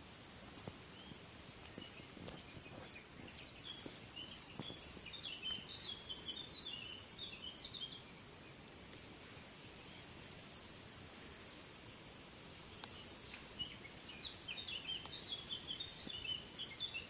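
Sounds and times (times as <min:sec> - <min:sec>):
songbird chirping: 0:00.0 - 0:17.0
bush rustling and clicks: 0:00.4 - 0:06.8, 0:12.6 - 0:13.7.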